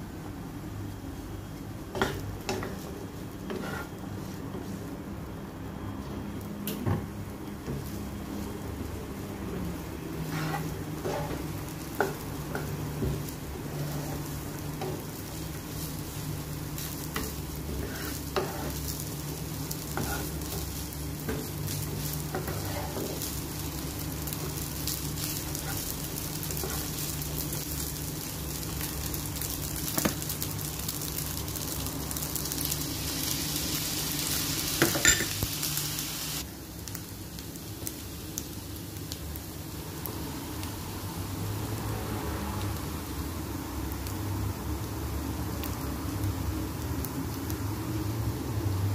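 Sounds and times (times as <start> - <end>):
rice sizzling in a hot pan: 0.0 - 48.9
spatula scraping and tapping pan: 1.9 - 4.0, 17.2 - 18.8, 19.9 - 20.6.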